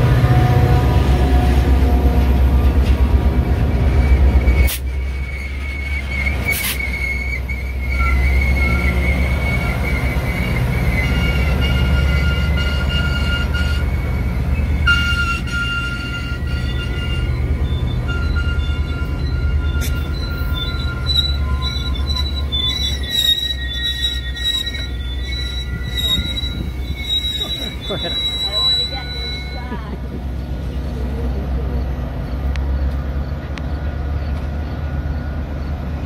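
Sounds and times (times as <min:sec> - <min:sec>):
diesel locomotives rumbling: 0:00.0 - 0:36.0
high-pitched brake squeal: 0:03.8 - 0:30.0.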